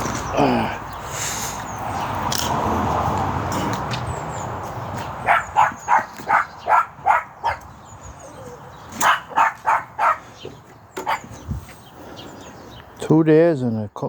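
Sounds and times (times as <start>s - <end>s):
dog barking: 5.2s - 7.7s, 9.0s - 10.3s, 11.0s - 11.3s.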